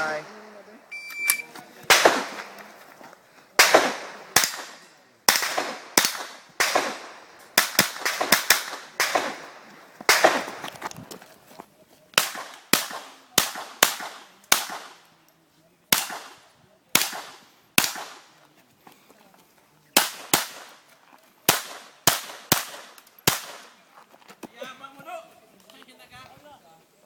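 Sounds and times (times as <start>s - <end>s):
electronic timer beep: 0.9s - 1.5s
rapid rifle fire: 1.9s - 2.5s.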